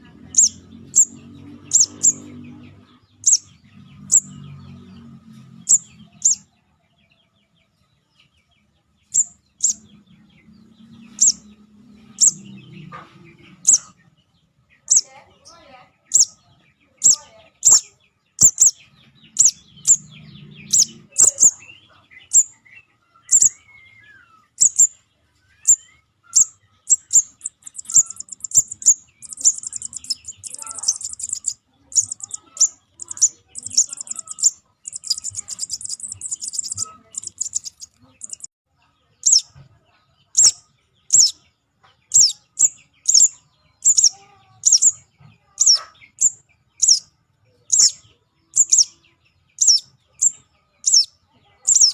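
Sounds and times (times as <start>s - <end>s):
young bird begging chirps: 0.2s - 2.3s, 3.2s - 4.3s, 5.7s - 6.4s, 9.2s - 9.8s, 11.1s - 11.5s, 12.2s - 12.5s, 13.5s - 13.9s, 14.8s - 15.1s, 16.1s - 16.4s, 17.0s - 22.6s, 23.2s - 23.7s, 24.6s - 24.9s, 25.6s - 38.5s, 39.2s - 39.5s, 40.4s - 41.4s, 42.1s - 45.0s, 45.6s - 47.0s, 47.7s - 49.0s, 49.6s - 51.9s.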